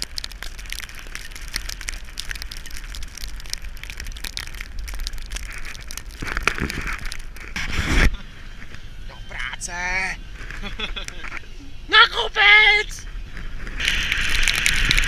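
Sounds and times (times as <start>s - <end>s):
skis scraping over crusty snow: 2.8s - 8.2s, 13.4s - 15.0s.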